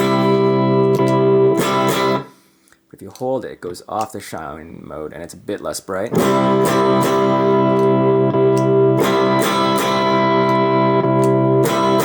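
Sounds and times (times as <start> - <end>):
overdriven electric guitar chords: 0.0 - 2.4, 6.1 - 12.0.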